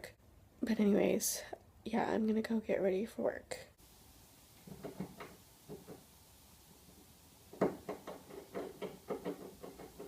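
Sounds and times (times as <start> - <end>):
quick irregular knocks: 4.6 - 6.1, 7.5 - 10.0.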